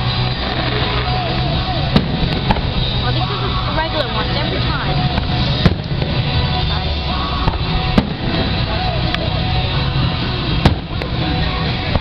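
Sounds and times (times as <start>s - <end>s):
firework shells bursting: 0.0s - 2.8s
loud music: 0.0s - 12.0s.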